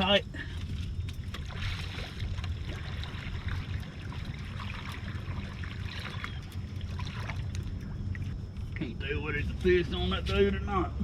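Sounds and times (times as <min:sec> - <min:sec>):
water sloshing against boat: 0:00.0 - 0:10.7
low steady rumble: 0:00.0 - 0:11.0.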